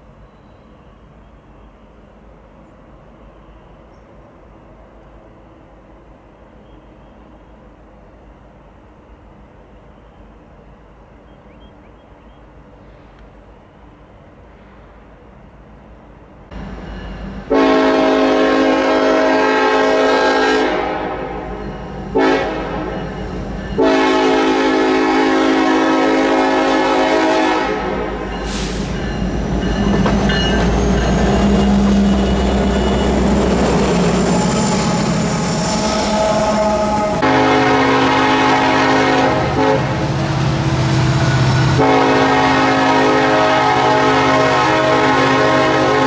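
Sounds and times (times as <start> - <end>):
train rumble: 0.0 - 46.0
locomotive air horn blasts: 17.5 - 22.9, 23.8 - 29.0, 35.8 - 40.2, 41.1 - 46.0
wheels clacking over rails: 29.0 - 34.0.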